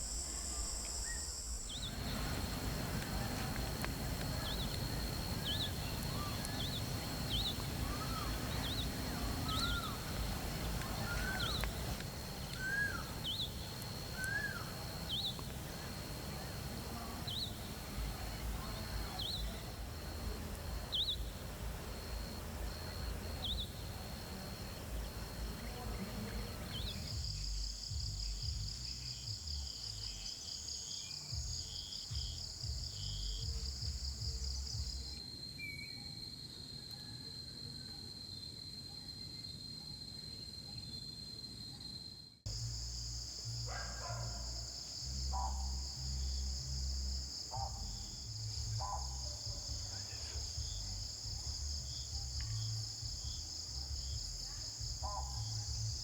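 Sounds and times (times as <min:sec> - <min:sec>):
bird calls: 0:00.0 - 0:19.8
high insect drone: 0:00.0 - 0:56.0
pulsing cricket trill: 0:00.0 - 0:56.0.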